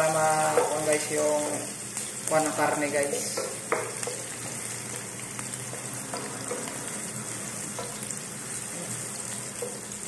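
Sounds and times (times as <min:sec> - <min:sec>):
onions sizzling in hot oil: 0:00.0 - 0:10.0
wooden spatula tapping: 0:00.5 - 0:01.0, 0:03.0 - 0:05.1.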